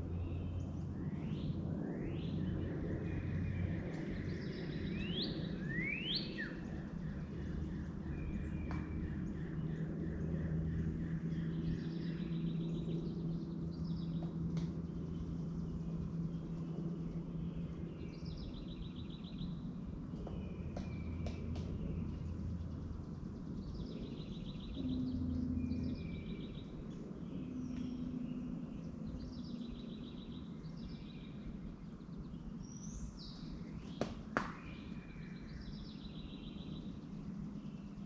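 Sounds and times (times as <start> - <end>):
steady low hum: 0.0 - 38.0
bird trills: 4.7 - 9.6
songbird whistles: 5.0 - 6.6.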